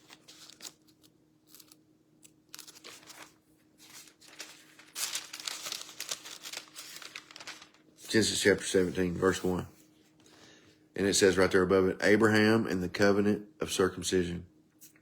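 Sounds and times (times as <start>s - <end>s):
thin pages rustling: 0.0s - 10.2s.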